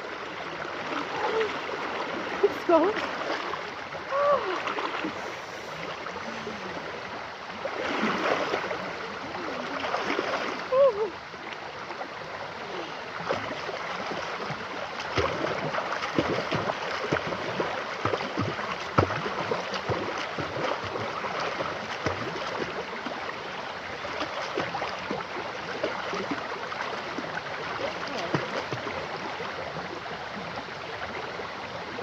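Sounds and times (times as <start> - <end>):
river rushing over stones: 0.0 - 32.0.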